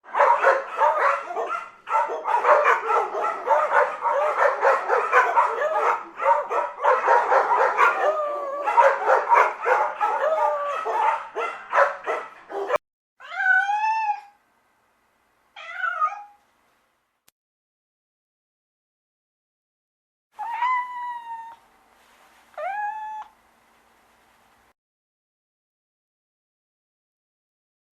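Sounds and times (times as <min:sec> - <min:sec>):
dogs yapping and yipping: 0:00.1 - 0:12.8
cat meowing: 0:13.2 - 0:14.4, 0:15.6 - 0:16.4, 0:20.4 - 0:21.6, 0:22.6 - 0:23.3.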